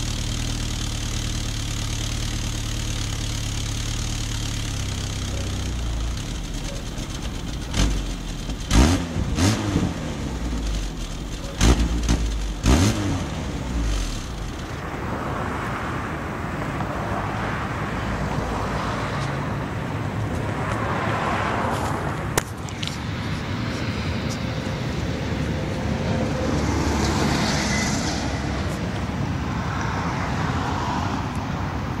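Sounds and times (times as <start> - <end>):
car engine revving: 0.0 - 14.8.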